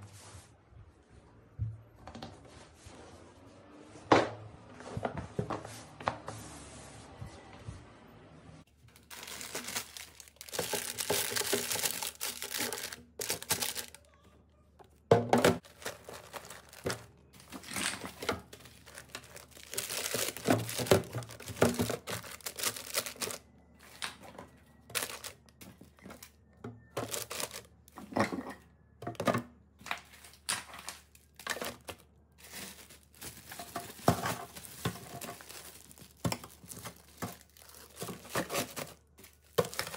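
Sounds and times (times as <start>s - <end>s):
packaging crinkling and rustling: 8.8s - 14.0s, 15.4s - 26.4s, 27.0s - 28.1s, 29.9s - 39.9s
packaging crackles and taps: 8.9s - 14.0s, 15.6s - 24.1s, 24.9s - 26.3s, 29.9s - 39.9s.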